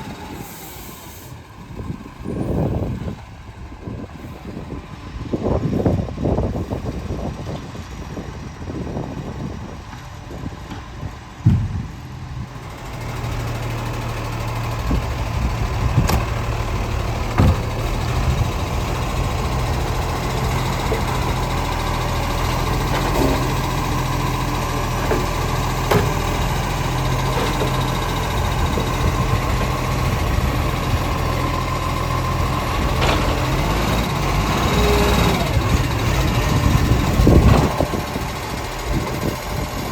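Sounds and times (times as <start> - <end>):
garbage truck engine running: 0.0 - 39.9
sharp knocks: 11.4 - 12.0.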